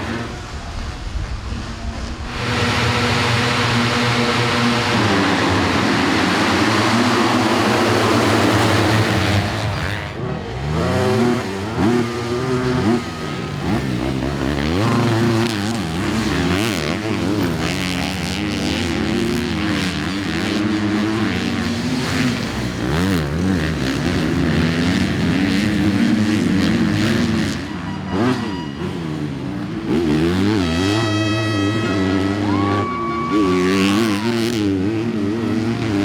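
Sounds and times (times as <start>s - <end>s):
motocross bikes revving: 0.0s - 36.0s.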